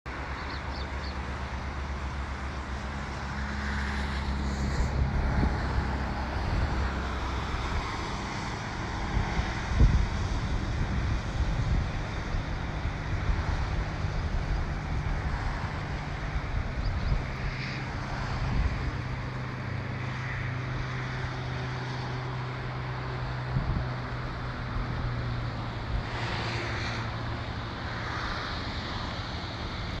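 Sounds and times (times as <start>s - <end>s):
low engine hum: 0.1s - 30.0s
rushing noise: 1.5s - 30.0s.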